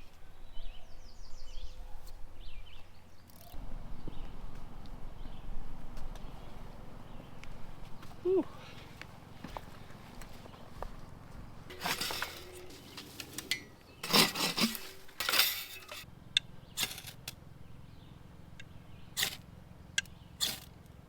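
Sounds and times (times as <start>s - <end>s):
handling rustles: 8.8s - 16.1s
small hard objects clinking: 11.7s - 16.1s.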